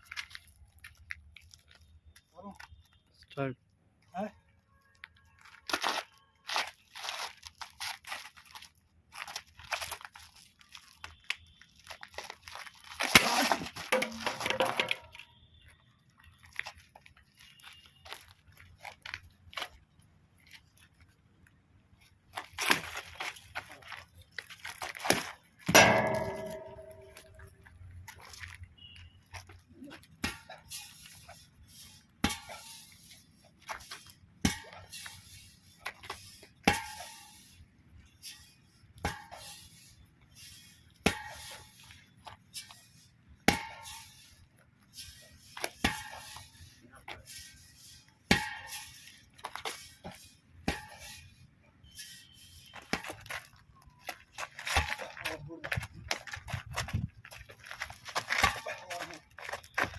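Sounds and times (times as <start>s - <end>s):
rustling and scraping: 16.3s - 59.9s
scuffing and crunching: 22.0s - 34.2s, 52.0s - 59.9s
sharp hit: 25.7s - 27.4s
sharp strikes: 25.7s - 27.5s.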